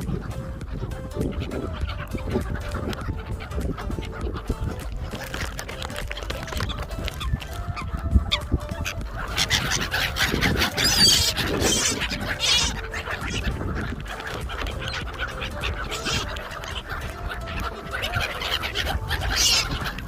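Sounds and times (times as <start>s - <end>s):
water birds and gulls calling: 0.0s - 20.0s.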